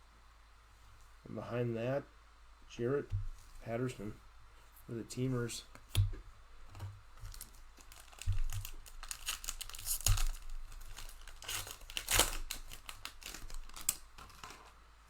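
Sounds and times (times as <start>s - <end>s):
plastic wrapper tearing and crinkling: 7.2s - 14.8s.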